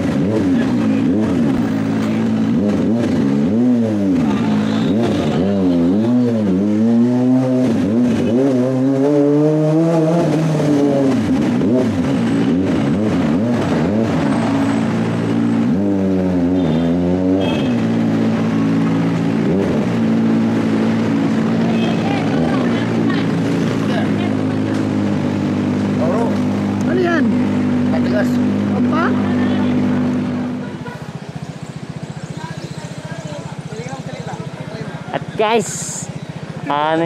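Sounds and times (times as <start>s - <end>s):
motorcycle engine revving: 0.0s - 37.0s
motorcycle engine idling: 28.9s - 37.0s.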